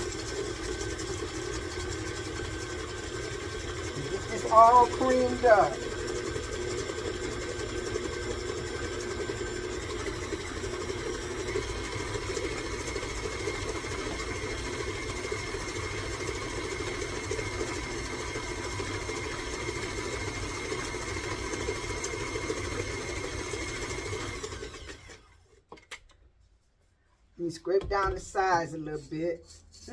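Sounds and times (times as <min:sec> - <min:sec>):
electric mixer running: 0:00.0 - 0:25.4.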